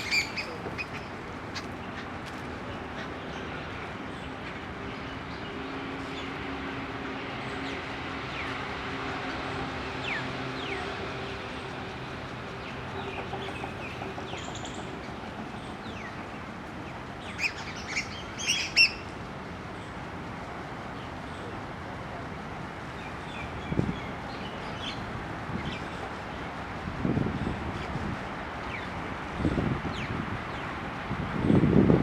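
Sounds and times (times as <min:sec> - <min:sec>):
sharp high bird calls: 0:00.0 - 0:01.6
birds chirping: 0:00.0 - 0:06.4, 0:09.9 - 0:19.1
distant traffic hum: 0:00.0 - 0:32.0.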